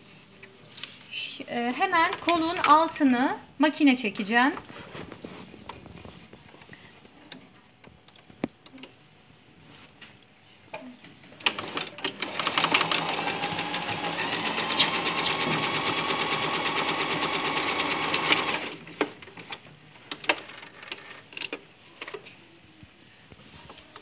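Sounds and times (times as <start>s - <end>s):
sewing machine stitching: 11.4s - 19.2s.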